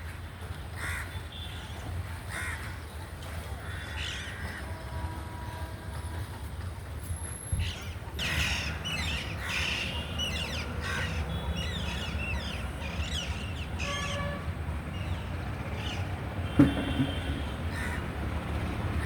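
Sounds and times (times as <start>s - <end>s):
knock: 16.5s - 17.4s.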